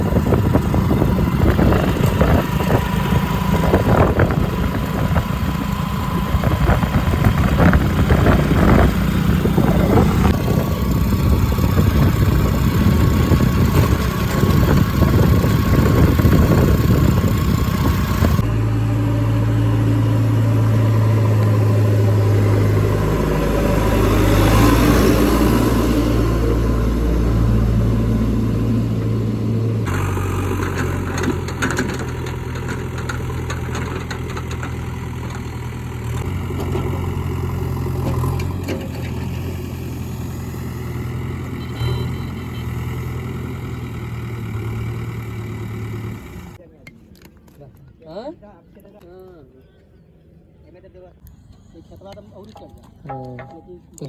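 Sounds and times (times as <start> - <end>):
diesel engine running: 0.0 - 46.6
knocks and clanks: 29.9 - 37.0, 52.9 - 54.0.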